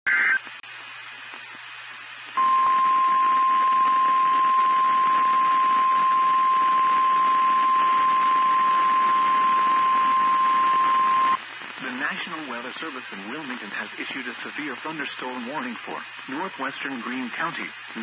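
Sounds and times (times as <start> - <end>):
radio static: 0.1 - 0.7, 1.3 - 18.0
faint radio hiss: 0.1 - 18.0
burst of data tones: 2.4 - 11.4
loud steady warning alarm tone: 2.4 - 11.4.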